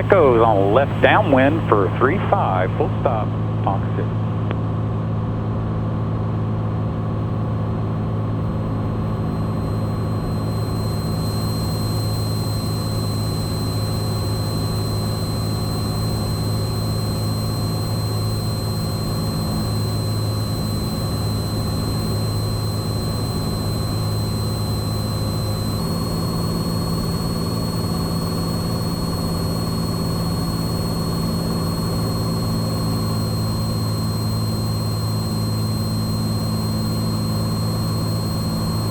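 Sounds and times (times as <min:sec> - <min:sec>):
thin high whine: 0:00.0 - 0:04.2, 0:17.0 - 0:38.9
airplane engine and propeller droning: 0:00.0 - 0:11.2.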